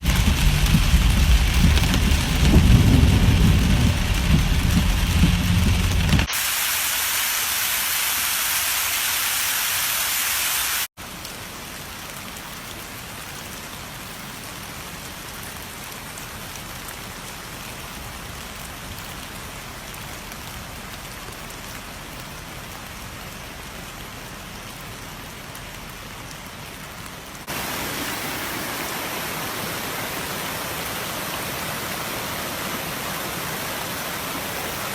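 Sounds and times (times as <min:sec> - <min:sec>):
deep rumble: 0:00.0 - 0:06.3
floodwater rushing: 0:00.0 - 0:34.9.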